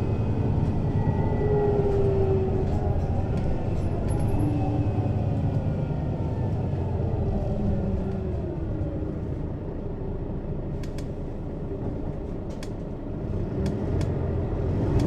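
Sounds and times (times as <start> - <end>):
bus diesel engine running: 0.0 - 15.0.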